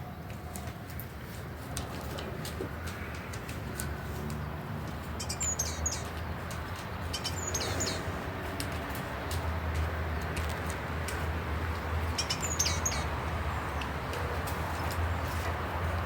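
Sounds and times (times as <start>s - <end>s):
birds chirping: 2.2s - 10.4s, 11.6s - 14.4s.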